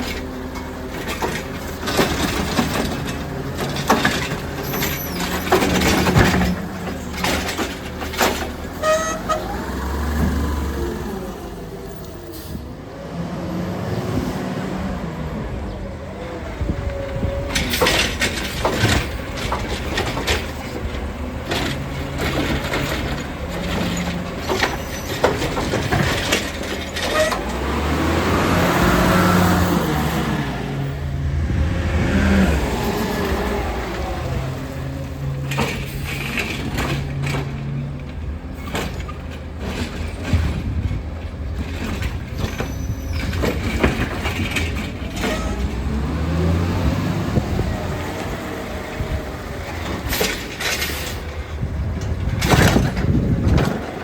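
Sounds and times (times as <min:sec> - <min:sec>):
metal clanks and knocks: 0:00.0 - 0:09.5, 0:17.1 - 0:27.7, 0:34.9 - 0:46.0, 0:49.0 - 0:54.0
diesel engine revving: 0:00.0 - 0:54.0.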